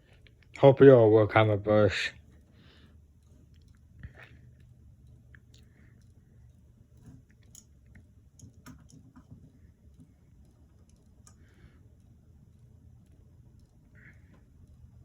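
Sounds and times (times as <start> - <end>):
low steady hum: 0.0 - 15.0
clicks and taps of fan parts: 7.0 - 15.0.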